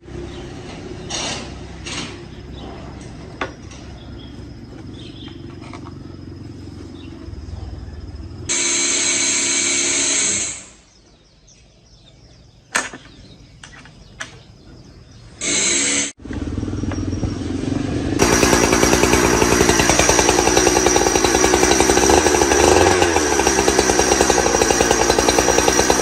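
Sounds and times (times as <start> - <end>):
chainsaw engine running: 8.5 - 10.8, 15.4 - 17.1, 18.0 - 26.0.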